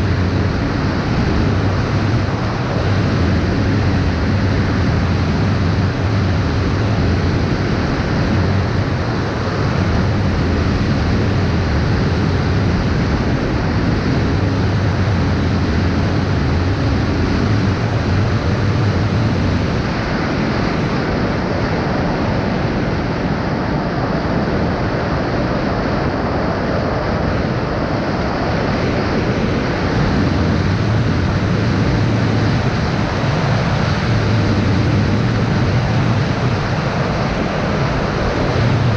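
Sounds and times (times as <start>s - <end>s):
wind noise on microphone: 0.0s - 38.9s
low hum: 26.0s - 38.9s.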